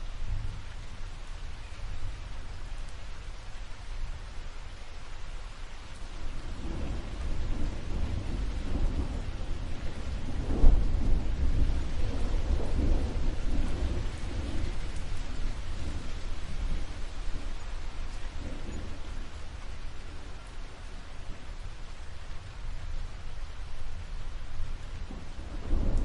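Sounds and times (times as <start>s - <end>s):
rain hissing: 0.0s - 26.0s
thunder rumbling: 6.3s - 26.0s.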